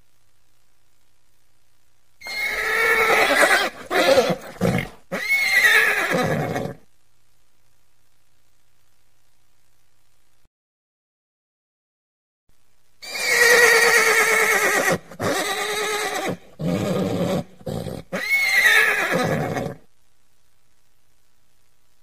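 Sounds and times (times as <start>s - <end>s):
horse neighing: 2.2s - 6.8s, 13.0s - 19.8s.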